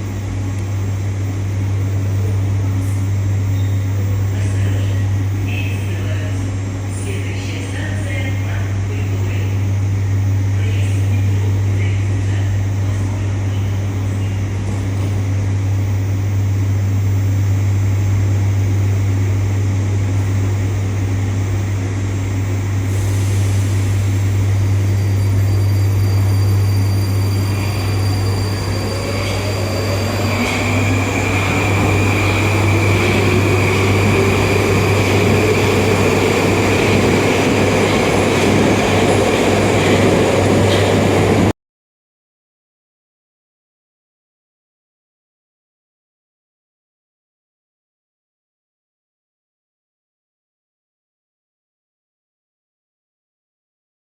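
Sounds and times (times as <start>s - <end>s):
train low hum: 0.0s - 41.5s
train motor whine rising: 22.6s - 41.5s.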